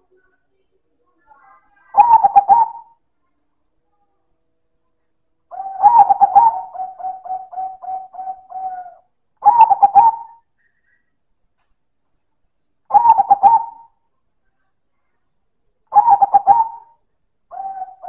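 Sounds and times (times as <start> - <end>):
dove cooing: 1.8 - 3.0, 5.5 - 10.5, 12.9 - 14.0, 15.9 - 18.0.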